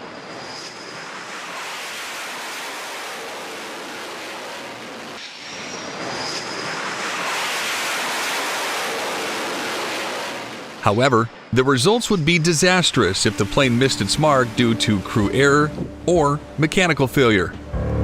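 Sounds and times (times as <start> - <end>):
jet engine rushing: 0.0 - 17.7
faint high whine: 10.6 - 18.0.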